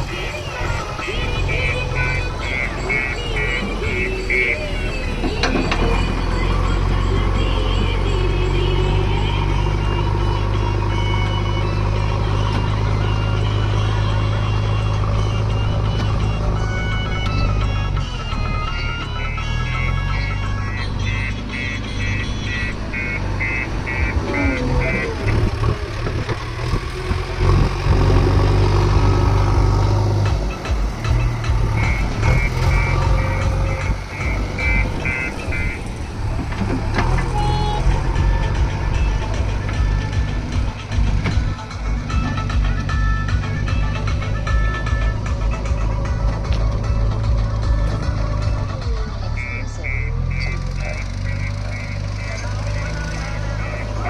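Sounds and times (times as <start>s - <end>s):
heavy diesel engine running: 0.0s - 54.0s
reversing alarm beeps: 1.4s - 7.1s, 21.6s - 25.4s, 31.2s - 35.8s.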